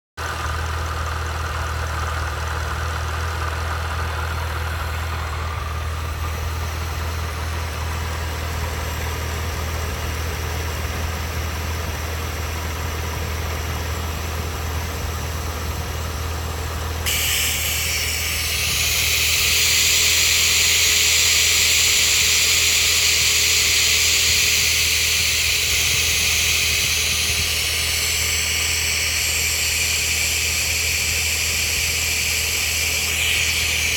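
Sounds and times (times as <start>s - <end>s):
car engine idling: 0.2s - 33.9s
loud hiss: 17.1s - 33.9s.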